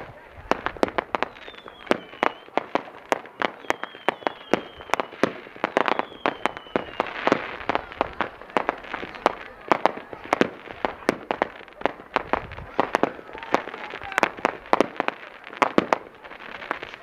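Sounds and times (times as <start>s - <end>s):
fireworks bangs: 0.0s - 17.0s
high firework whistle: 0.8s - 17.0s.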